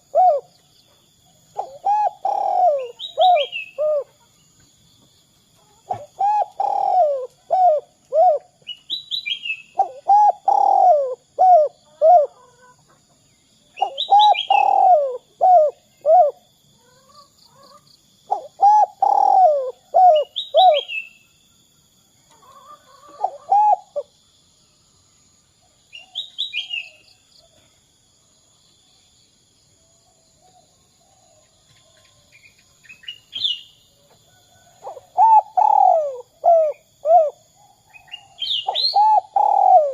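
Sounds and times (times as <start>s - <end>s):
dove cooing: 0.0s - 0.5s, 1.5s - 4.2s, 5.8s - 8.6s, 9.7s - 12.8s, 13.8s - 21.0s, 22.5s - 24.1s, 34.6s - 37.4s, 38.6s - 39.9s
small birds chirping: 0.0s - 21.4s, 28.5s - 39.9s
faint high insect tone: 0.0s - 39.9s.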